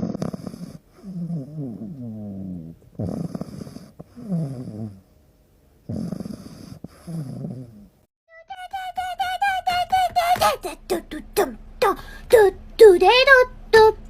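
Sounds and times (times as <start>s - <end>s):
animal snoring-like sounds: 0.0s - 5.2s, 5.8s - 8.1s.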